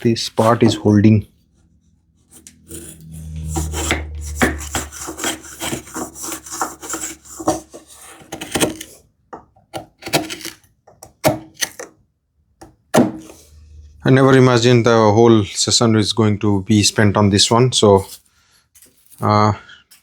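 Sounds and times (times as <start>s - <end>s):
wood rubbing and scraping: 0.3s - 9.0s
low drone: 1.4s - 7.0s, 13.2s - 16.7s.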